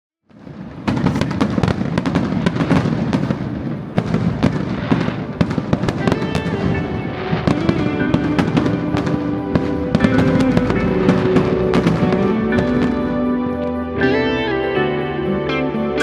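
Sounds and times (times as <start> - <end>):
fireworks popping and crackling: 0.3 - 13.8
music with sustained notes: 4.5 - 16.0.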